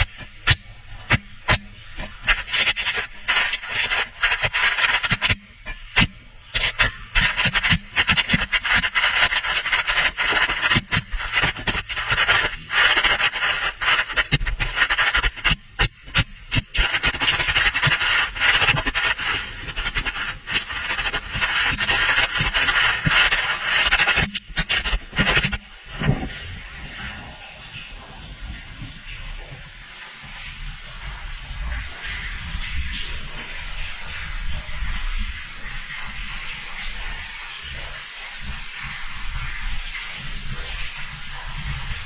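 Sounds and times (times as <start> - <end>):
camera scraping shaft walls: 0.0 - 25.6.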